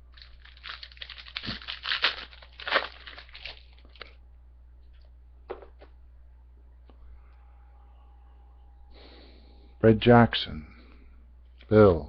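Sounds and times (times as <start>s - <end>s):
plastic wrapper crinkling: 0.1s - 4.2s.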